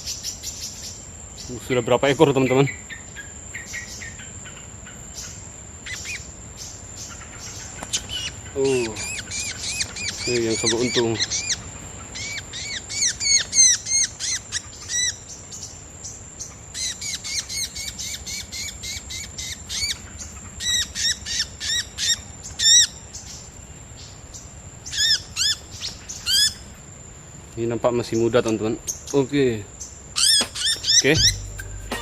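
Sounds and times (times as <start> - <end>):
small bird calling: 0.0 - 27.3, 28.0 - 32.0
thin high-pitched tone: 31.2 - 32.0.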